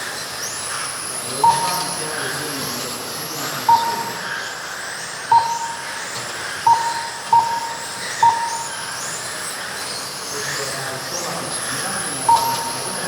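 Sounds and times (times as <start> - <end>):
short loud beeps: 5.3 - 6.0, 6.7 - 8.8, 12.3 - 13.0
rc car motors whining: 5.9 - 13.0.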